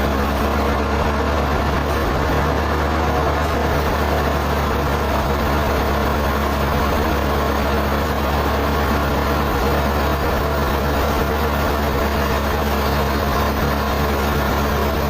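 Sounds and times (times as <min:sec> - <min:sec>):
sawmill machinery running: 0:00.0 - 0:15.0.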